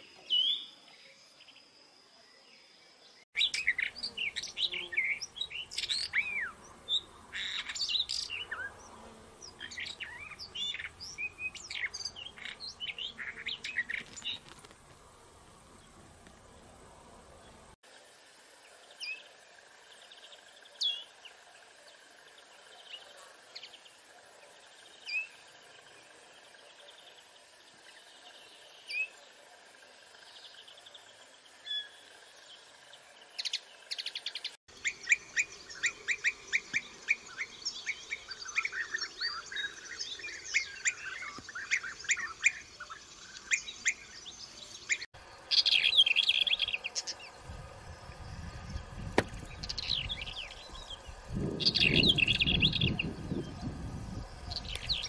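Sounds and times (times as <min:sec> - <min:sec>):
songbirds chirping and twittering: 0:00.0 - 0:17.8, 0:18.4 - 0:55.0.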